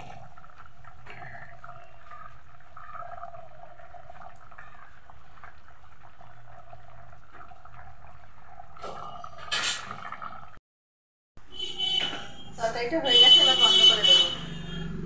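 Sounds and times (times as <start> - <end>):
curry bubbling in a pan: 0.0 - 10.6.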